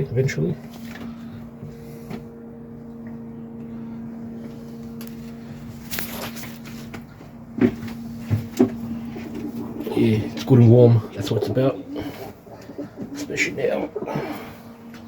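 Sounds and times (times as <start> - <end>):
steady low hum: 0.0 - 15.0
pigeon cooing: 9.0 - 14.8.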